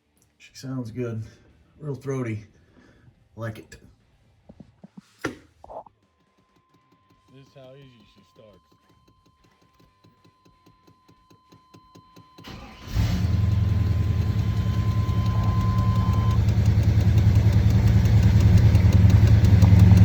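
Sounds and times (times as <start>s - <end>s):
starter ticking: 12.4s - 20.0s
truck engine idling: 12.5s - 20.0s.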